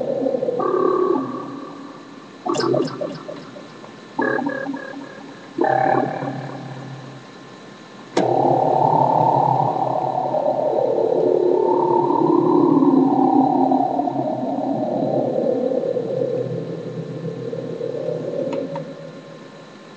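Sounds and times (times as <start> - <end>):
synthesizer noise swirling: 0.0 - 7.6
click: 8.2 - 8.4, 18.5 - 18.9.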